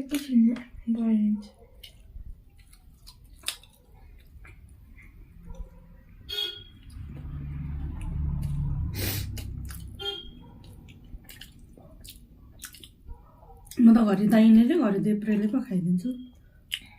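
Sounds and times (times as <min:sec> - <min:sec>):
low engine hum: 0:06.6 - 0:11.7.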